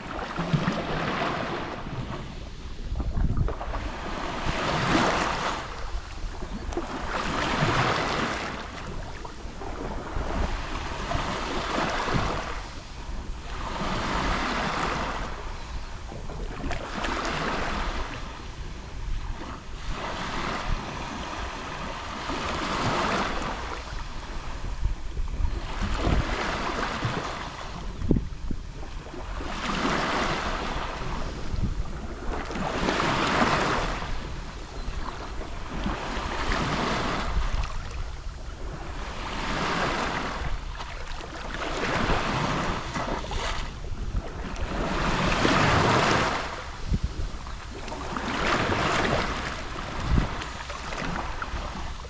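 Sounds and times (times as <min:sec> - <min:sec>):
sea waves lapping on shore: 0:00.0 - 0:52.0
wind rumble on microphone: 0:00.0 - 0:52.0.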